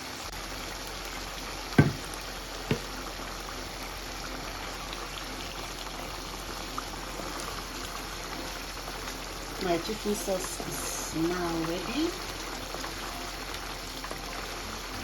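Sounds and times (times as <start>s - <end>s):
sauce simmering in a pot: 0.0s - 15.0s
sharp knocks: 1.8s - 2.1s.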